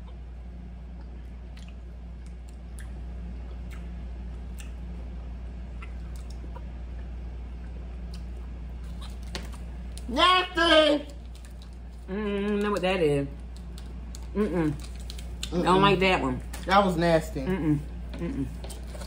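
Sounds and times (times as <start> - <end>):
steady low hum: 0.0 - 19.0
people chewing: 11.1 - 16.8, 17.5 - 19.0.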